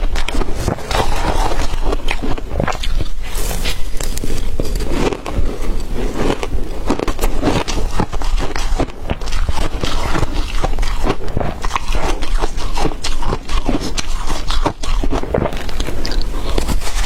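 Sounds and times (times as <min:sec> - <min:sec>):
ice being chewed: 0:00.0 - 0:17.0.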